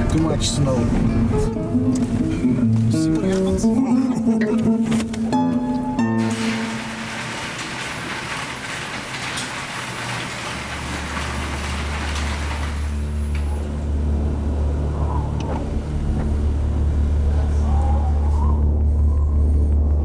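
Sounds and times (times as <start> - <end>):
low engine drone: 0.0 - 5.0, 11.2 - 20.0.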